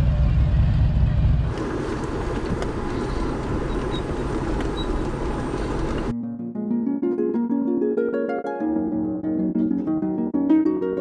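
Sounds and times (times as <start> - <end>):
motorcycle engines rumbling: 0.0 - 6.1
steady vehicle din: 0.0 - 6.1.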